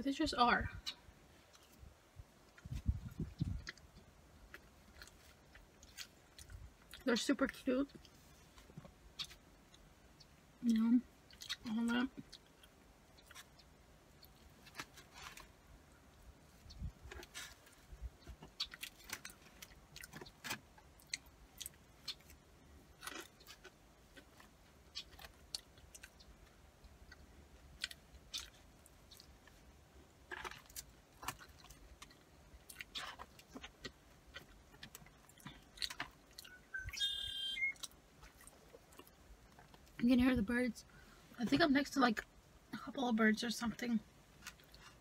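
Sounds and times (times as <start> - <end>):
person chewing fries: 3.6 - 7.0, 11.2 - 11.6, 12.2 - 40.0, 44.3 - 45.0
bird calling: 36.4 - 37.9.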